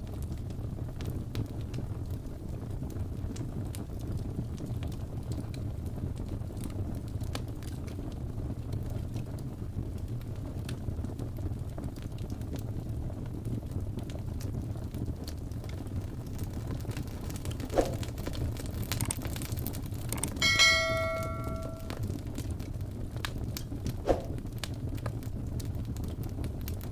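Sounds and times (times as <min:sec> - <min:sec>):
fire crackling: 0:00.0 - 0:26.9
fire pops: 0:15.5 - 0:21.0
metallic bell ding: 0:20.4 - 0:22.0.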